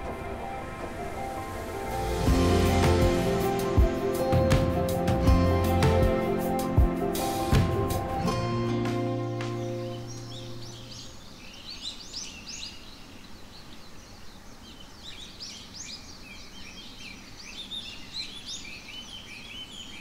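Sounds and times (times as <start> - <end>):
held music note: 0.0 - 10.6
small birds chirping: 8.7 - 20.0.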